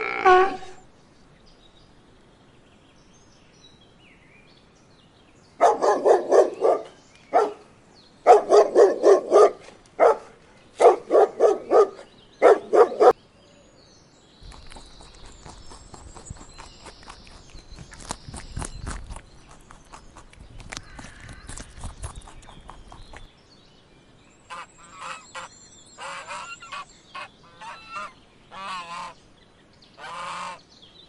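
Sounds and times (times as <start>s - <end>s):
dog barking: 5.6s - 7.7s, 8.3s - 13.2s.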